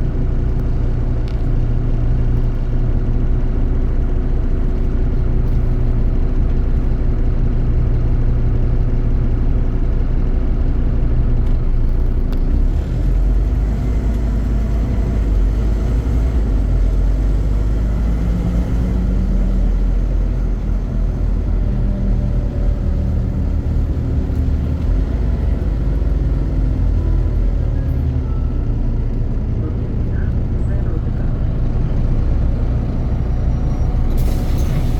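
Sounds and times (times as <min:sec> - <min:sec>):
bus diesel engine running: 0:00.0 - 0:34.9.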